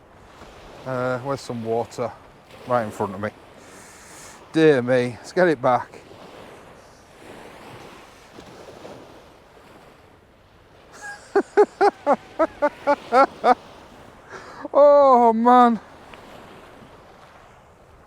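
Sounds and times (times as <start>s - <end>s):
wind and surf hiss: 0.0s - 18.0s
man laughing: 11.0s - 13.6s, 14.3s - 15.4s.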